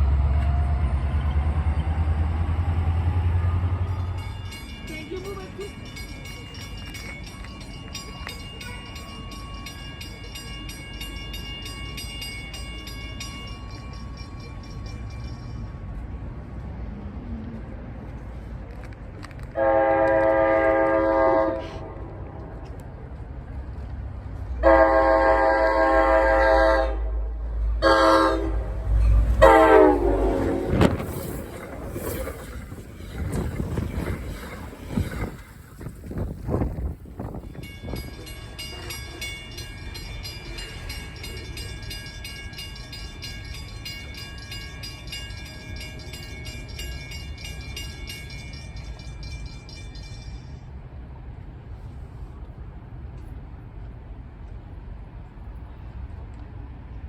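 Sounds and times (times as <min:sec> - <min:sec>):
train wheels clicking on rail joints: 0:00.0 - 0:25.4, 0:27.4 - 0:50.8
low train rumble: 0:00.0 - 0:57.0
locomotive air horn: 0:19.6 - 0:22.1, 0:24.6 - 0:31.2.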